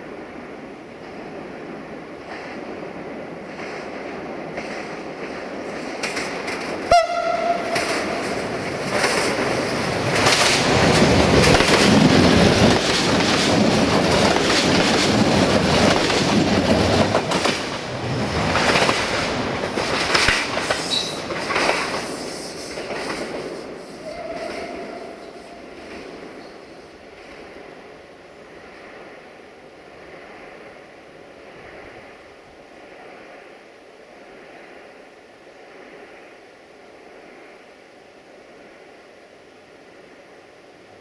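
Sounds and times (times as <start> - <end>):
train engine noise: 0.0 - 41.0
wheels clicking over rail joints: 3.5 - 26.6
train horn: 6.9 - 8.4, 24.0 - 25.7.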